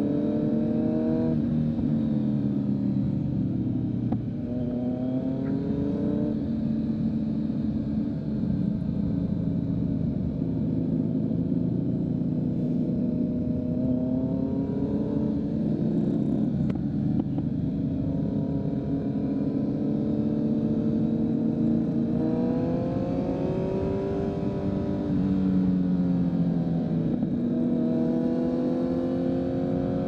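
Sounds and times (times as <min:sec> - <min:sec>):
motorcycle engine revving: 0:00.0 - 0:02.5, 0:18.1 - 0:30.0.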